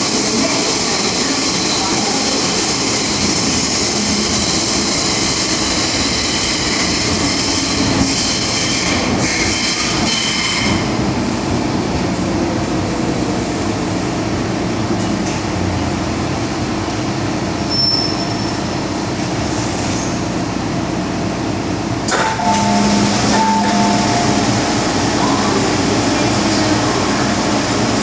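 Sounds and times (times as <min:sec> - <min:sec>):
train wheels rumbling on rail: 0:00.0 - 0:28.0
high wheel squeal: 0:17.6 - 0:18.8.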